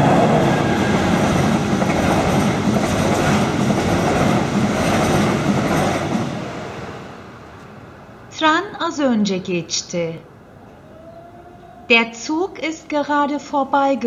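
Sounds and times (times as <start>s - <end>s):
train wheels on rails: 0.0s - 7.9s.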